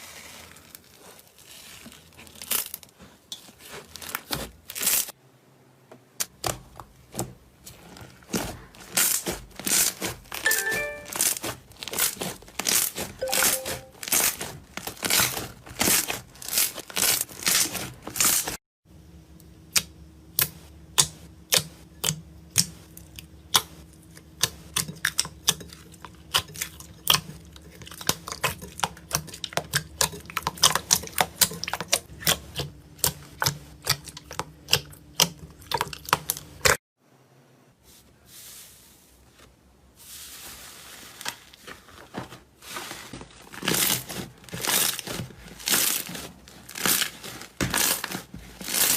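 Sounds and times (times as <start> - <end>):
slime crackling and popping: 0.6 - 2.9, 8.3 - 10.5, 43.5 - 48.9.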